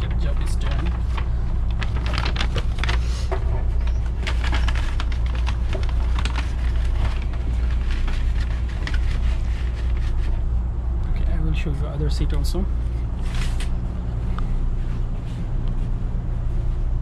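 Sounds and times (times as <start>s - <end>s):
train carriage hum: 0.0s - 17.0s
handling clicks and rustles: 0.1s - 10.4s.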